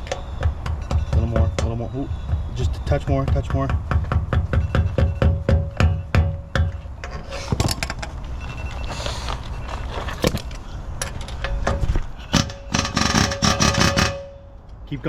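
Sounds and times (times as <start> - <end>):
metal-on-metal strikes: 11.7 - 14.5.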